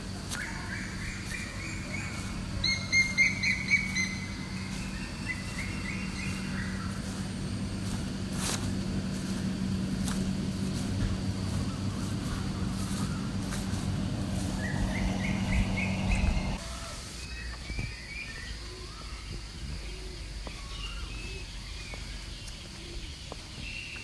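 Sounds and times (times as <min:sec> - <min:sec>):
steady low hum: 0:00.0 - 0:17.1
bird chirping: 0:00.4 - 0:08.0, 0:10.6 - 0:16.6.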